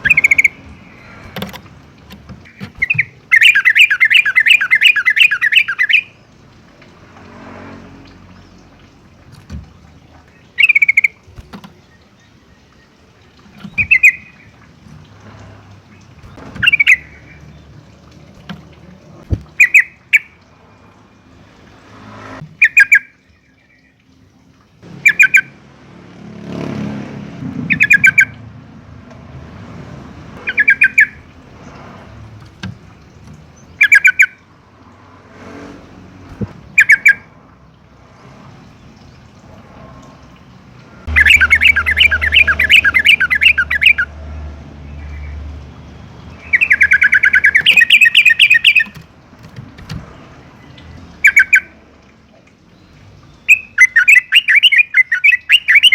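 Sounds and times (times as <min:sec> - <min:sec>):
bulbul bubbly call: 0:00.0 - 0:01.3, 0:02.4 - 0:06.2, 0:09.7 - 0:11.8, 0:13.2 - 0:15.2, 0:16.0 - 0:20.6, 0:24.9 - 0:25.6, 0:27.7 - 0:28.5, 0:30.4 - 0:31.3, 0:36.3 - 0:37.4, 0:41.0 - 0:44.1, 0:46.4 - 0:49.0, 0:50.7 - 0:55.9.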